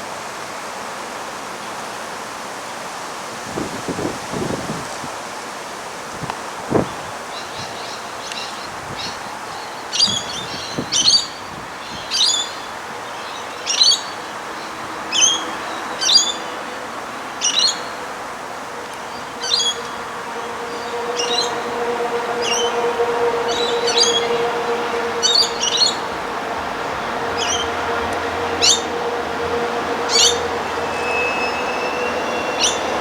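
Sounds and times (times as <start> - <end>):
outdoor background noise: 0.0 - 33.0
bird chirping: 18.8 - 26.1, 27.3 - 28.9, 29.5 - 33.0.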